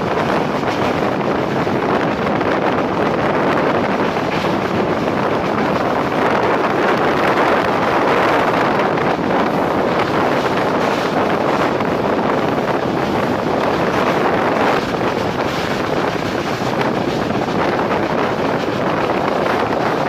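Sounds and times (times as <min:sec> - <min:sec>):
train running noise: 0:00.0 - 0:20.0
wind buffeting microphone: 0:00.0 - 0:20.0.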